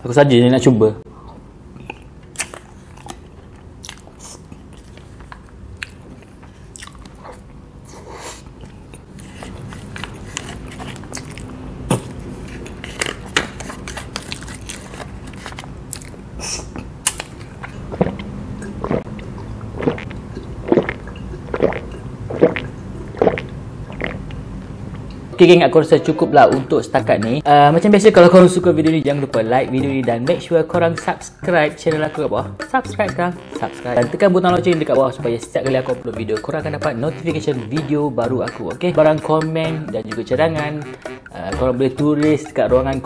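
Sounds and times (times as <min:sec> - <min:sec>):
chewing with mouth clicks: 0:01.8 - 0:07.6, 0:08.6 - 0:12.2, 0:13.9 - 0:25.2
gulping drink: 0:17.7 - 0:24.4.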